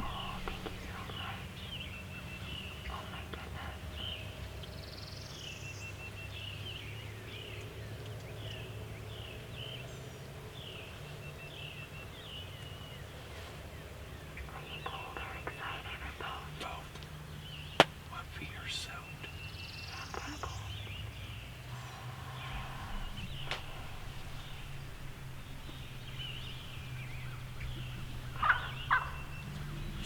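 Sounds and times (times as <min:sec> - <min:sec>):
low outdoor rumble: 0:00.0 - 0:30.0
songbird chirping: 0:00.0 - 0:30.0.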